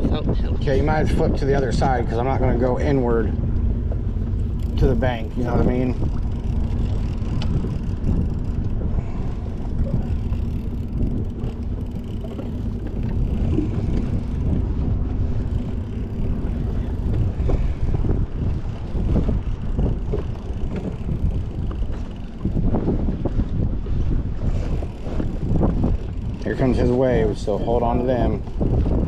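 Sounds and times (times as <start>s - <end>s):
boat motor hum: 0.0s - 29.0s
water noise: 0.0s - 29.0s
wind buffeting microphone: 0.0s - 29.0s.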